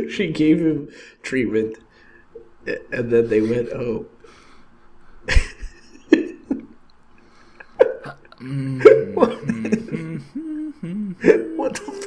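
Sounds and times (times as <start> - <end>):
men laughing: 5.2 - 6.8, 7.6 - 12.0.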